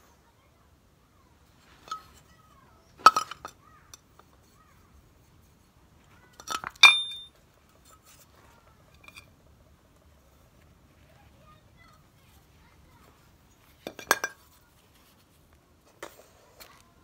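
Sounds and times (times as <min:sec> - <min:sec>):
metal objects clinking: 0:02.9 - 0:04.2, 0:06.4 - 0:07.4, 0:13.8 - 0:14.6.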